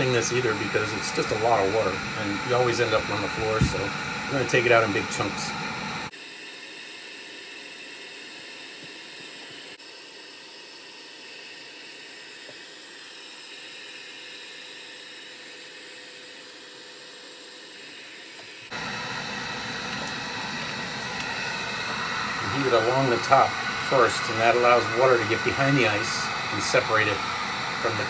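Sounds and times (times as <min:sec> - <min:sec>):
hot-air blower hissing: 0:00.0 - 0:28.0.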